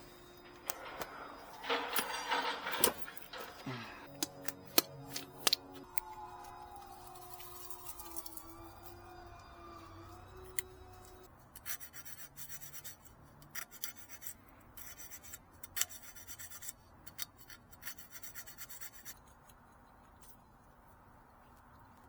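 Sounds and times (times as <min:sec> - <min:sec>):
hard scraping strokes: 0:00.0 - 0:09.0.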